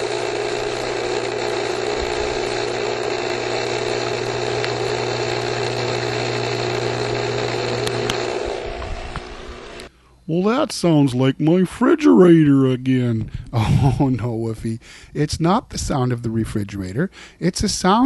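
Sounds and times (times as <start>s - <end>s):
pool pump motor hum: 0.0s - 9.9s.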